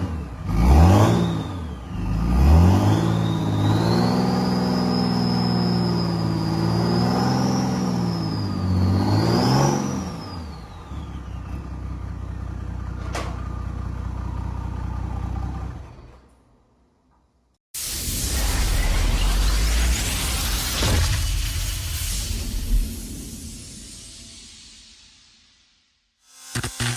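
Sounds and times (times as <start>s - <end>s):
diesel engine revving: 0.0s - 12.7s
turbo whistle: 2.9s - 9.5s
sharp click: 26.5s - 26.9s.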